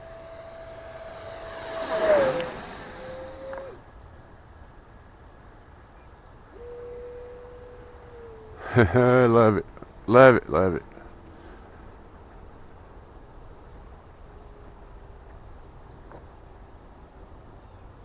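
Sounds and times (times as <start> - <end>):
electric jet whining past: 0.0 - 3.9, 6.6 - 9.6.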